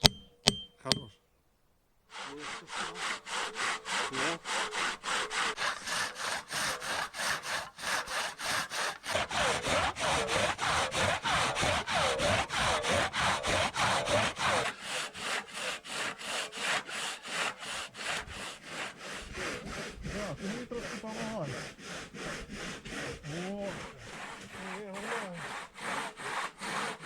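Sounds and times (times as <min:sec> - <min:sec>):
saw blade ringing: 0:00.0 - 0:01.2
hand saw cutting through log: 0:02.1 - 0:27.0.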